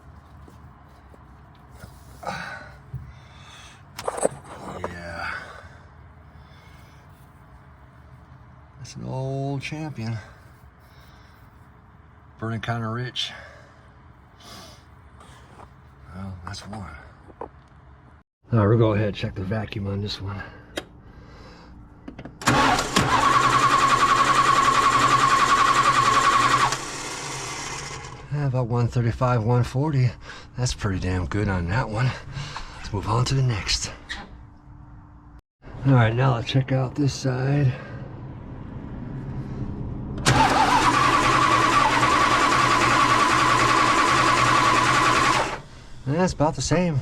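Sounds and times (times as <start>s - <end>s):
starter motor cranking engine: 22.4s - 28.2s, 40.2s - 45.8s.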